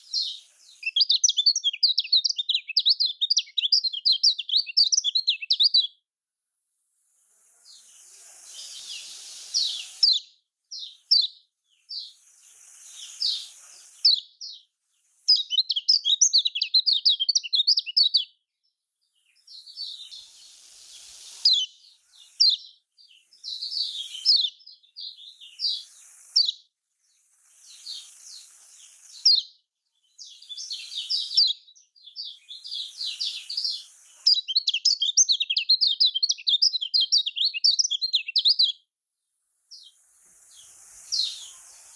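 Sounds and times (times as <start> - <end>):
bird chirping and trilling: 0.0 - 6.0, 8.5 - 12.2, 15.3 - 18.4, 19.2 - 26.7, 27.7 - 38.8.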